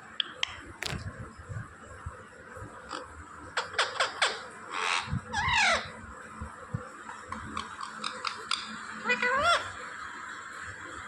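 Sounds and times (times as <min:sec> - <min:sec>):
parrot chirping and squawking: 0:03.6 - 0:05.9, 0:07.6 - 0:09.7.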